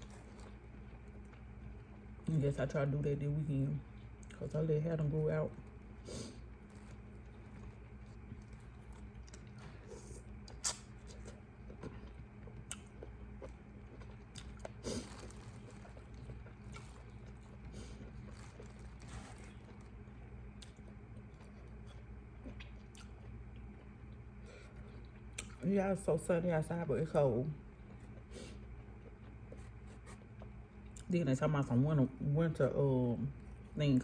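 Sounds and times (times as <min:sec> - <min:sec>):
person chewing food: 0:00.0 - 0:02.2, 0:05.6 - 0:25.6, 0:27.6 - 0:31.1
wet mouth clicks: 0:10.5 - 0:10.9.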